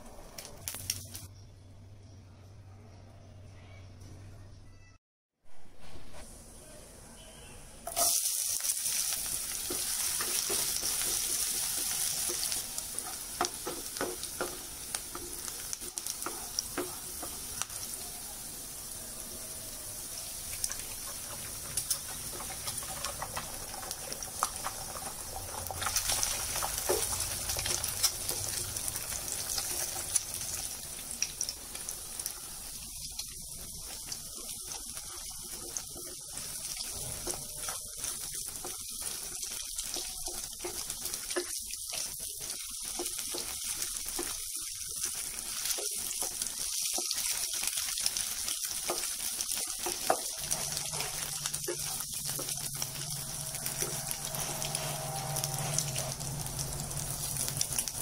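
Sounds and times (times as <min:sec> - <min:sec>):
food sizzling in hot oil: 0:07.8 - 0:58.0
wooden spoon stirring: 0:20.5 - 0:28.8, 0:33.7 - 0:47.8, 0:48.4 - 0:56.3.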